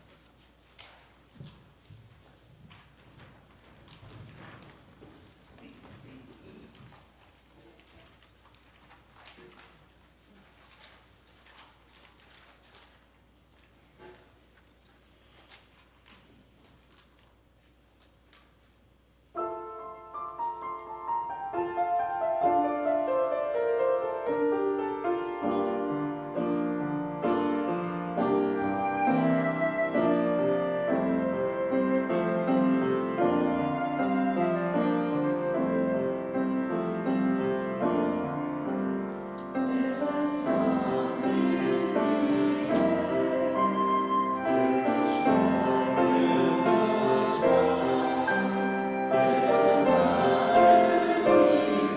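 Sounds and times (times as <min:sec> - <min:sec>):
piano music: 0:19.3 - 0:51.9.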